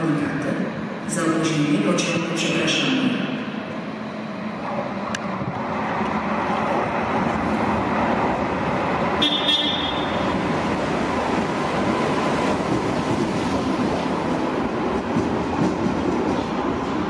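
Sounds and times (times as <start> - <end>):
train rumbling: 0.0 - 17.0
high train horn toot: 9.2 - 10.3.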